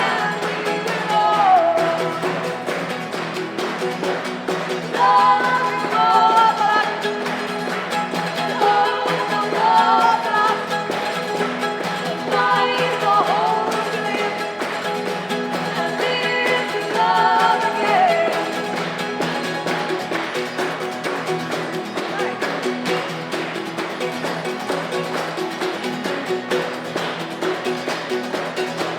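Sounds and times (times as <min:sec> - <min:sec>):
person singing: 0:00.0 - 0:02.7, 0:04.9 - 0:07.6, 0:08.3 - 0:11.5, 0:12.1 - 0:19.0.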